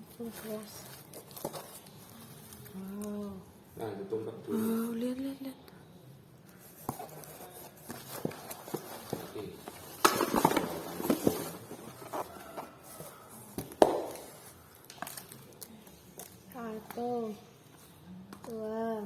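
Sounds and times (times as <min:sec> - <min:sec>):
plastic and card packaging rustling: 0:00.0 - 0:03.1, 0:06.5 - 0:17.1.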